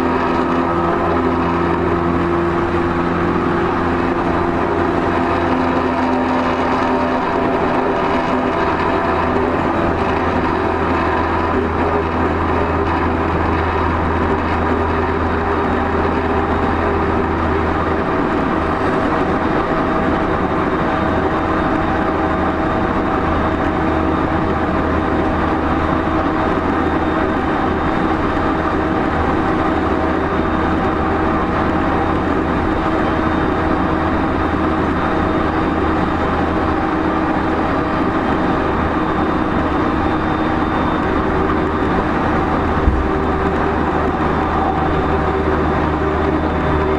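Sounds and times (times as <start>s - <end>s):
electric train running at speed: 0.0s - 46.9s
traction motor hum: 39.7s - 46.9s.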